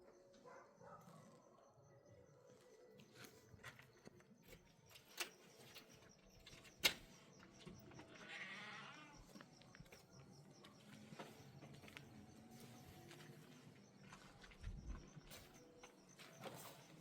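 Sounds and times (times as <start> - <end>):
wavering animal cry: 8.0 - 9.4.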